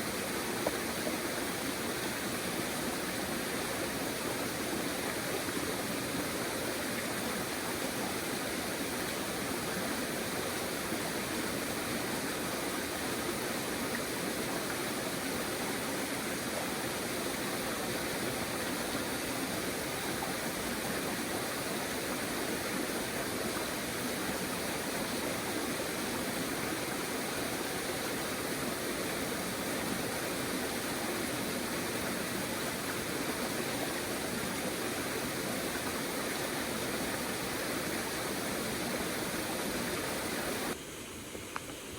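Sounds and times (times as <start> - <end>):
river water flowing: 0.0 - 41.9.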